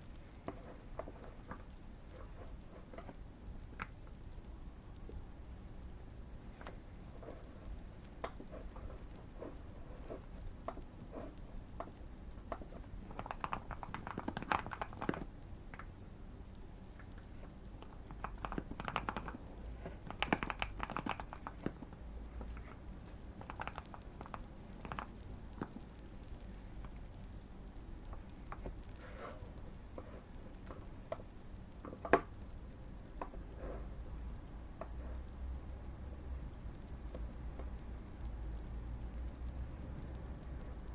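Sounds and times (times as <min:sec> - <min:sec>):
fire crackling: 0:00.0 - 0:40.9
mechanical keyboard typing: 0:11.8 - 0:15.4, 0:17.8 - 0:19.5, 0:20.1 - 0:22.6, 0:23.3 - 0:25.9.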